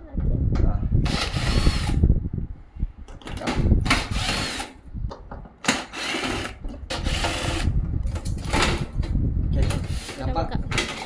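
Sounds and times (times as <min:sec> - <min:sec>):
cordless drill whirring: 0:01.0 - 0:02.1, 0:03.3 - 0:04.8, 0:05.6 - 0:09.0.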